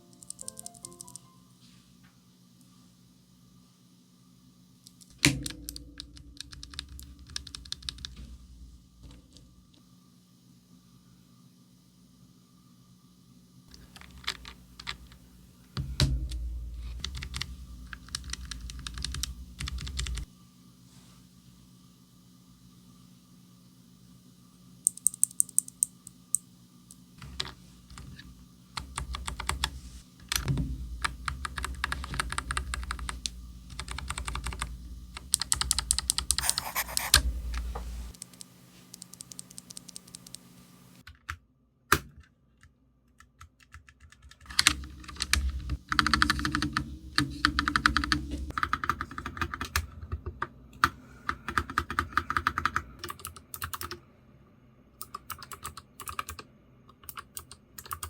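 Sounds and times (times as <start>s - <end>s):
typing on clicky keyboard: 0.0s - 1.3s, 5.4s - 8.2s, 13.7s - 15.1s, 17.0s - 20.3s, 28.8s - 29.7s, 31.2s - 37.2s, 38.2s - 40.4s, 43.2s - 46.8s, 51.3s - 54.0s, 55.0s - 58.0s.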